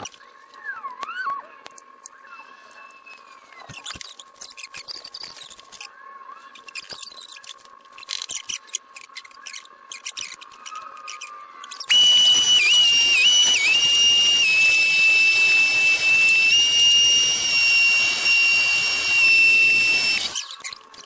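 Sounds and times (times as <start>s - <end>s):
power tool high-pitched whine: 11.1s - 21.0s.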